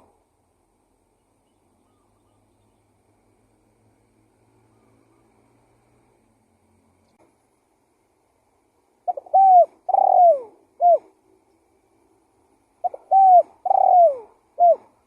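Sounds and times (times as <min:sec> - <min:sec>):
dove cooing: 0:09.0 - 0:11.2, 0:12.8 - 0:15.0.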